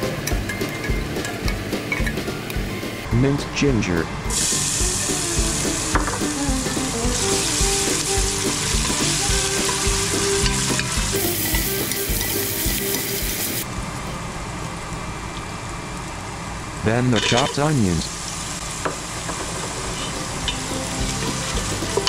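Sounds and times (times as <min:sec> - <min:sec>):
garlic sizzling in hot oil: 0:04.3 - 0:13.7, 0:14.9 - 0:22.0.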